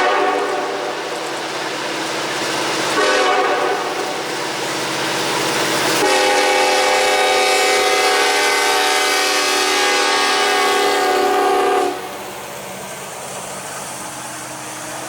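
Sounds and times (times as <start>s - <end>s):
locomotive air horn chord: 0.0s - 0.9s, 3.0s - 4.0s, 6.0s - 12.1s.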